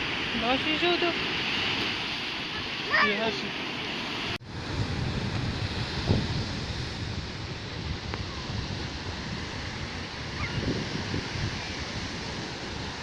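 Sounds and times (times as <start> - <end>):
sea surf washing onto beach: 0.0 - 13.0
wind buffeting microphone: 4.3 - 13.0.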